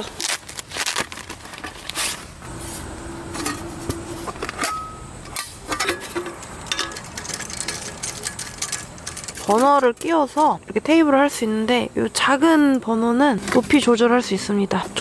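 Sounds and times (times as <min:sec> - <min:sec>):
camping gear clicking and clattering: 0:03.4 - 0:10.6.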